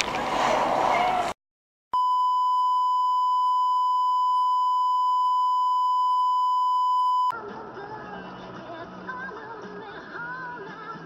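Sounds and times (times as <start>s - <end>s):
high electronic beep: 2.0s - 7.3s
music: 7.4s - 11.0s.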